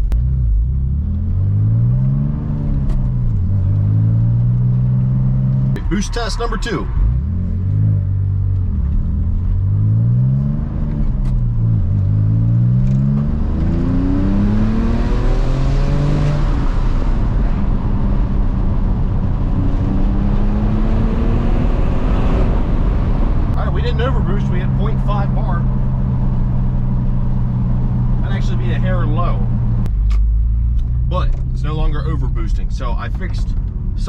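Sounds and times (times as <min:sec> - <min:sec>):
car engine accelerating hard: 0:00.0 - 0:33.8.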